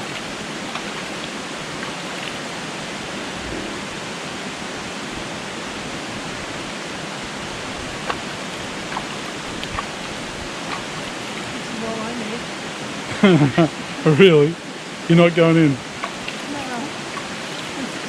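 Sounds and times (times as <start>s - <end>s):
waterfall pouring into pool: 0.0s - 3.3s, 13.7s - 18.0s.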